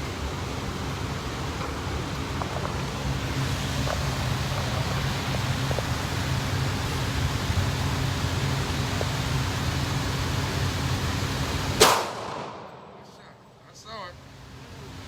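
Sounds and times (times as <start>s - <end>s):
steady rushing noise: 0.0s - 14.9s
gunshot: 11.8s - 13.2s.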